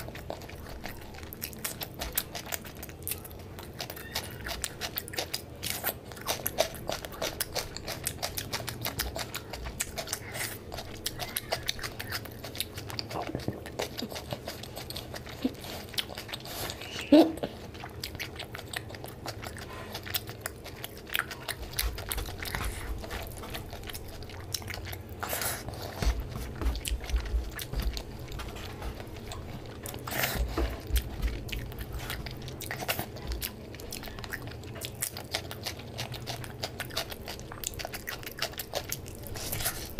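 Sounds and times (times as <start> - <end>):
man chewing: 0.0 - 39.9
soft low bumps: 25.7 - 32.4.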